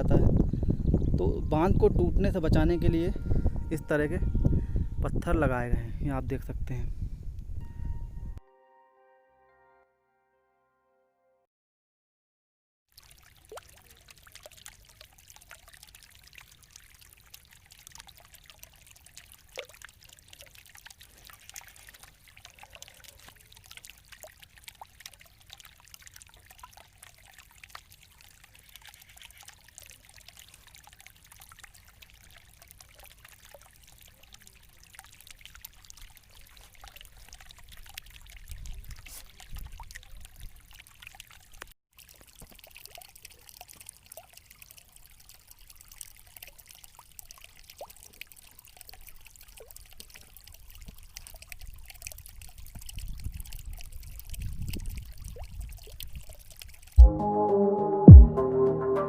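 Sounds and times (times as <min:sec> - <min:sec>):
water trickling and splashing: 0:00.0 - 0:06.5, 0:12.9 - 0:57.0
wind rumble on microphone: 0:00.0 - 0:08.4, 0:38.4 - 0:40.5, 0:52.4 - 0:56.4.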